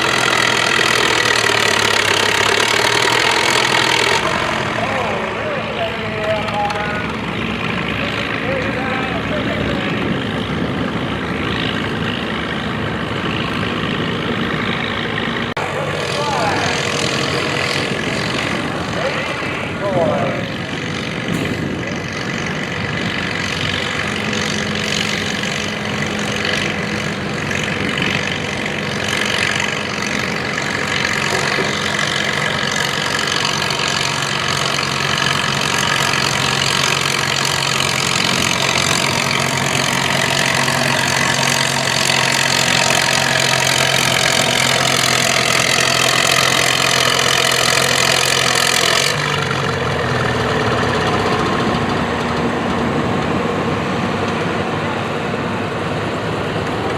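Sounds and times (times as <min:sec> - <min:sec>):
tractor engine working hard: 0:00.0 - 0:56.9.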